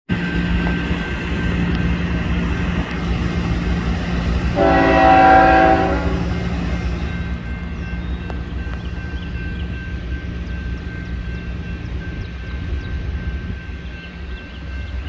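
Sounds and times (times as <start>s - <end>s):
diesel locomotives rumbling: 0.1s - 15.0s
locomotive horn blast: 3.4s - 7.4s.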